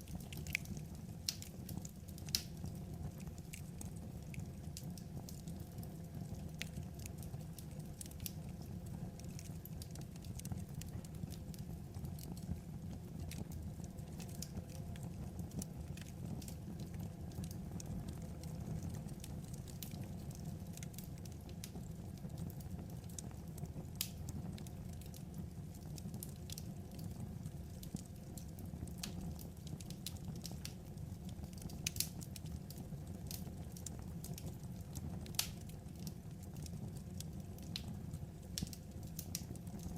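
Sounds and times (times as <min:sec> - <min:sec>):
wood fire crackling: 0:00.0 - 0:39.9
sharp pops and snaps: 0:00.2 - 0:04.5, 0:31.5 - 0:33.4, 0:35.2 - 0:37.9, 0:38.6 - 0:39.9.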